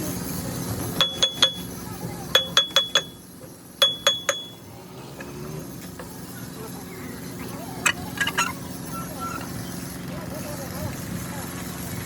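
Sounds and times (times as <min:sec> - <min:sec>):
metal tapping on metal: 0:01.0 - 0:01.7, 0:02.3 - 0:03.2, 0:03.8 - 0:04.6.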